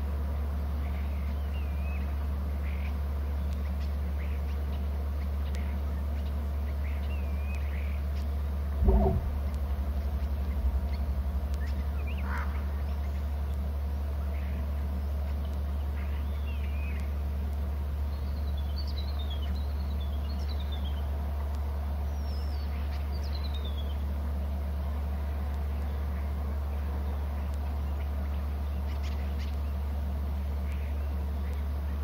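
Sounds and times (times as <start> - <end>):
steady low hum: 0.0 - 32.0
faint bird calls: 3.6 - 17.1.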